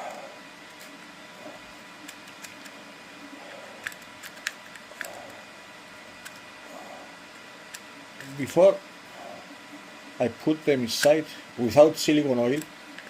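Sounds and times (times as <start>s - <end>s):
faint steady hum: 0.0s - 13.0s
plastic parts clicking: 2.0s - 2.8s.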